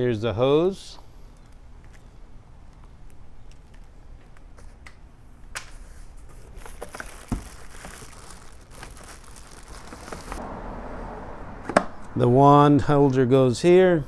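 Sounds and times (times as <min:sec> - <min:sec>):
parts being handled: 0:01.3 - 0:10.4
plastic packaging crinkling: 0:06.0 - 0:10.4.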